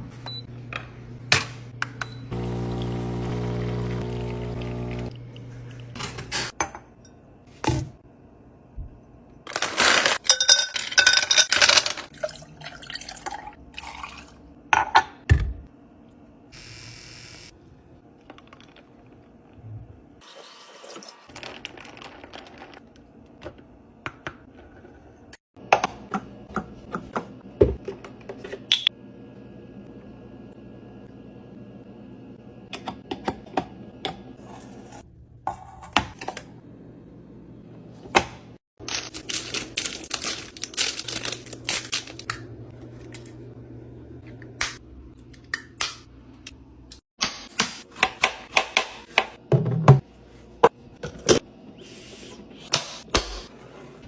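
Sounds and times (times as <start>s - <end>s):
containers clicking and clinking: 9.5s - 15.0s, 21.3s - 23.6s
pouring or rustling: 21.3s - 23.1s.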